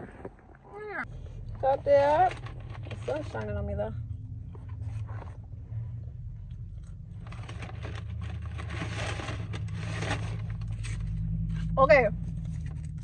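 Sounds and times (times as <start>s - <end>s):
steady low hum: 0.0s - 13.0s
person chewing crunchy fries: 6.3s - 8.5s.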